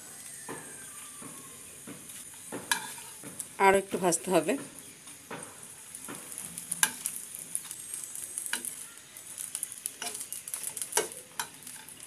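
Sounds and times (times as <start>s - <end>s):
spring rolls sizzling in oil: 0.0s - 12.0s
spoon knocking a pan: 0.5s - 3.5s, 4.4s - 7.2s, 9.4s - 12.0s.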